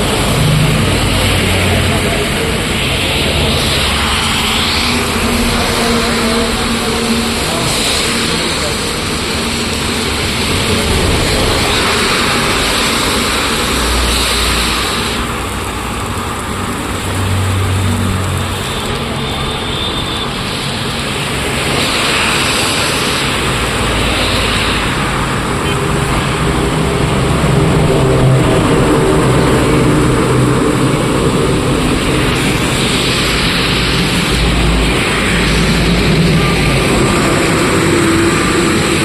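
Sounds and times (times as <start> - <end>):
road noise: 0.0 - 39.0
vehicles passing: 0.0 - 39.0.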